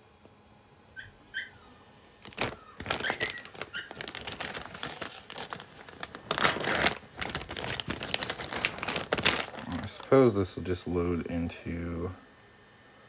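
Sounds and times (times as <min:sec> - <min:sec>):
plastic packaging crinkling: 0:02.1 - 0:10.3.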